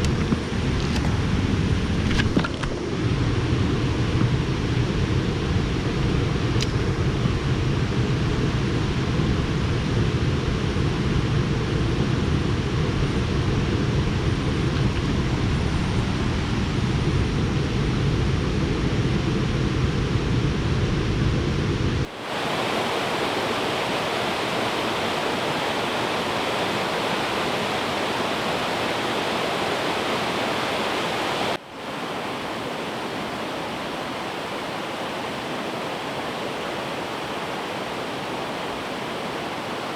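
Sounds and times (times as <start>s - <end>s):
river water rushing: 22.1s - 39.9s.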